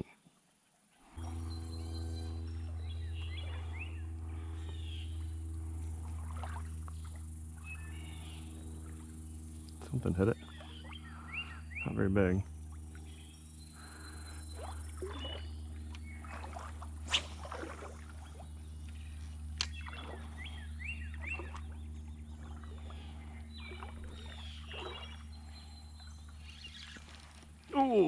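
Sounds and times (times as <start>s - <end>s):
steady low rumble: 1.1s - 27.8s
birds chirping: 1.2s - 17.2s, 18.2s - 28.0s
splashing or rustling: 16.2s - 20.4s, 26.8s - 27.7s.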